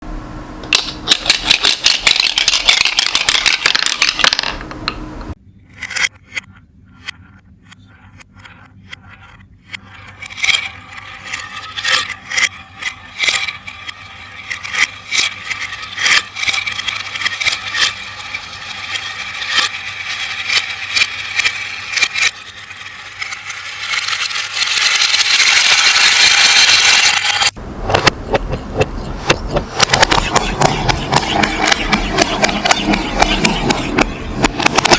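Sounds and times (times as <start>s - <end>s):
glass marbles rolling and clicking: 0.8s - 4.7s, 9.7s - 27.6s.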